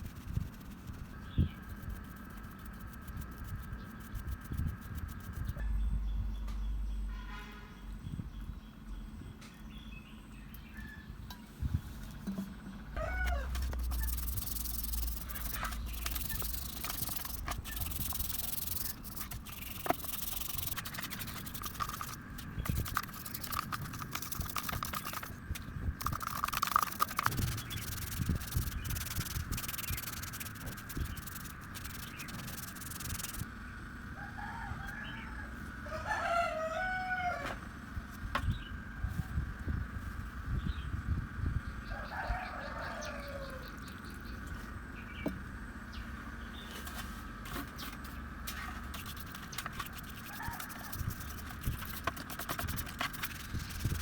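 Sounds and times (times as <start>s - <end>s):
rough scraping with clicks: 11.3s - 33.5s, 46.6s - 54.0s
rooster crowing: 13.0s - 14.1s, 34.2s - 37.7s, 41.9s - 43.8s, 50.3s - 51.0s.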